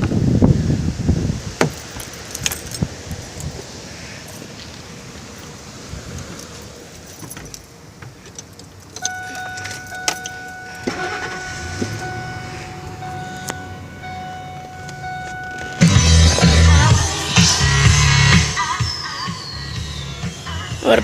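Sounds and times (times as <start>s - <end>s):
keys jangling: 1.7s - 3.6s, 6.2s - 10.8s
truck electronic warning tone: 9.0s - 21.0s.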